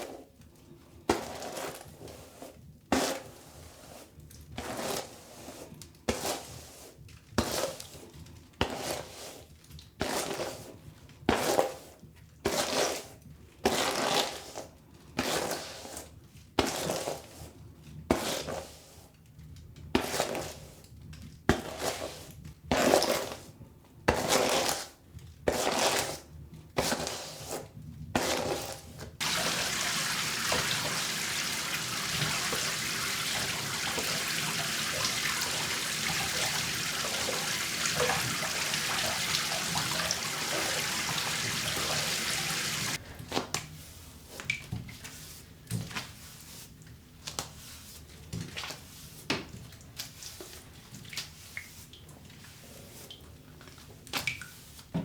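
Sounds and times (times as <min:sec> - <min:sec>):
tap water running into sink: 0:29.2 - 0:43.0
water drips and splashes: 0:29.2 - 0:43.0.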